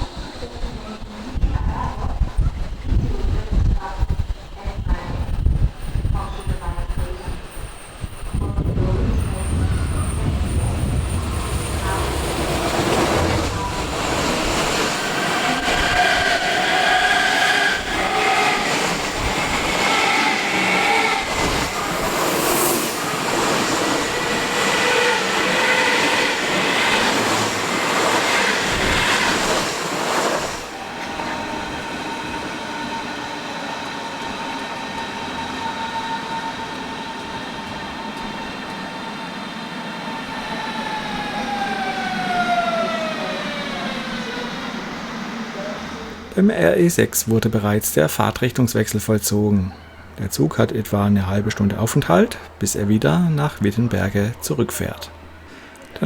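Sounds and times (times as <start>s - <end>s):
train wheels squealing on rails: 4.2s - 46.3s.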